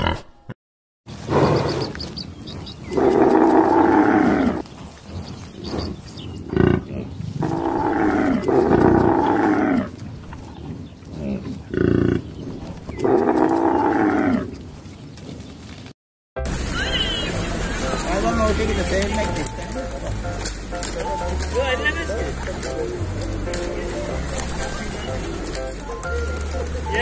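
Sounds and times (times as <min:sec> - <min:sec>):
camels calling: 0:16.5 - 0:27.0.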